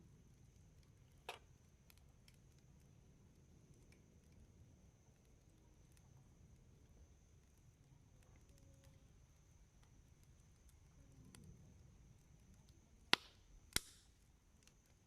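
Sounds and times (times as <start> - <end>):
wood fire crackling: 0.1 - 15.0
fire popping: 0.2 - 15.0.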